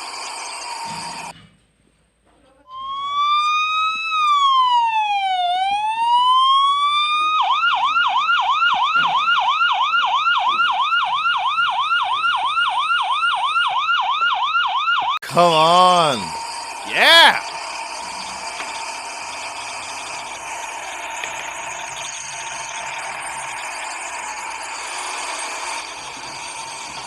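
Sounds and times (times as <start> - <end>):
emergency siren wailing and yelping: 2.7 - 15.2.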